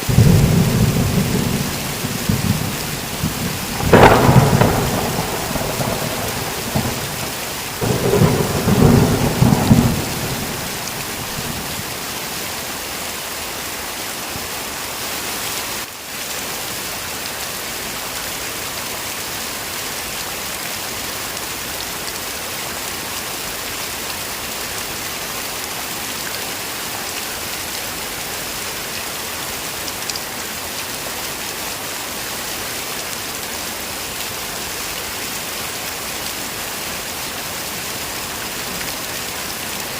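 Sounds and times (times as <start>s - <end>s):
heavy rain: 0.0s - 39.9s
thunder rumbling: 0.1s - 12.0s.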